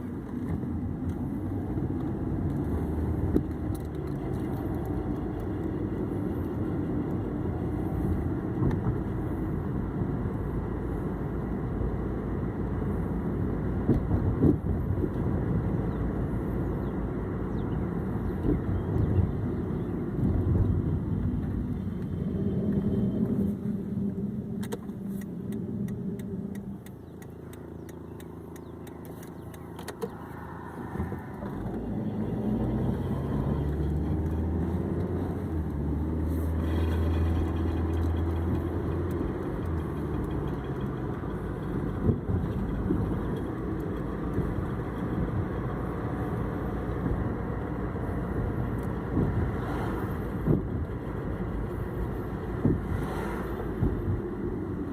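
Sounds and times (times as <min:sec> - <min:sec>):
car engine and road noise: 0:00.0 - 0:54.9
wheel grinding noise: 0:26.9 - 0:46.3.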